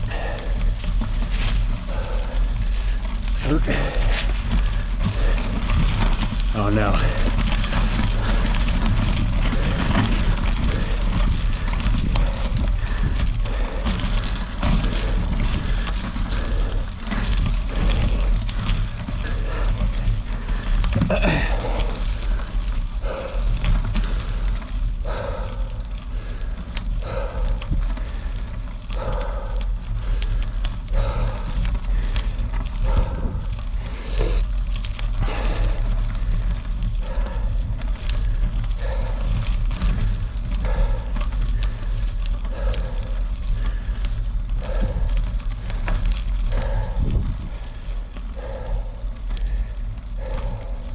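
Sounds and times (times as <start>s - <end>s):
person breathing heavily: 0.0s - 50.9s
tyres crunching over gravel: 0.0s - 50.9s
wind buffeting microphone: 0.0s - 50.9s.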